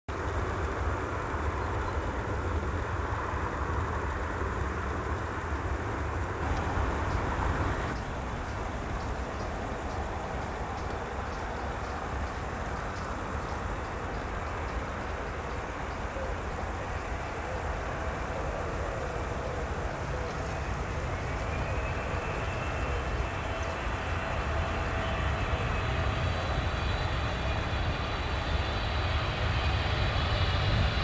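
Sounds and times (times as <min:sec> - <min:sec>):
crickets chirping: 0:00.2 - 0:31.0
jet airliner engine rushing: 0:06.0 - 0:31.0.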